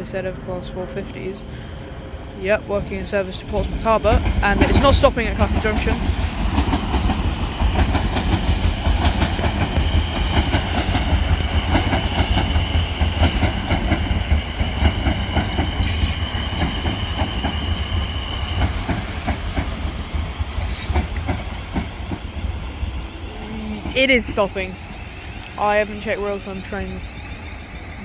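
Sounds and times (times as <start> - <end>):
train low rumble: 0.0 - 28.0
train wheels clattering: 2.8 - 28.0.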